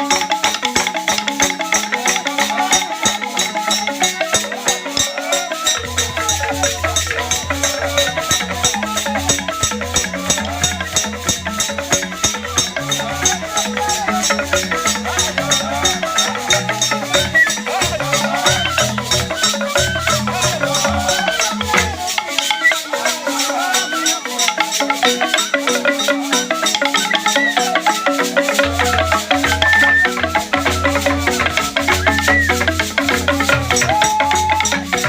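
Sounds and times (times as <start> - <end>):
pitched percussion: 0.0 - 35.0
rattle strokes: 0.0 - 35.0
low notes: 28.2 - 35.0.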